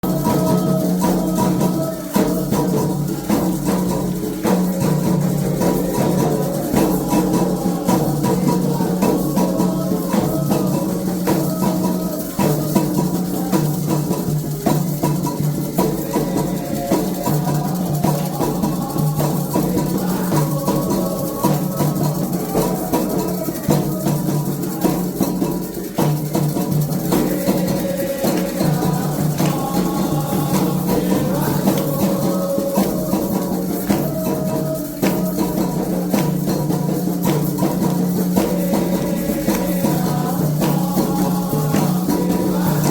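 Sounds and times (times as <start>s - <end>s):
drums: 0.0s - 42.9s
shaken rattles: 0.0s - 42.9s.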